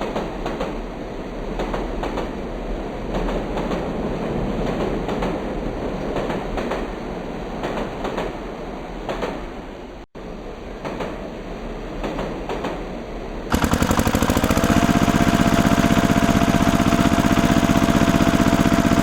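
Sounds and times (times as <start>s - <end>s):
machine running: 13.5s - 19.0s
rattle of irregular clicks: 13.5s - 19.0s.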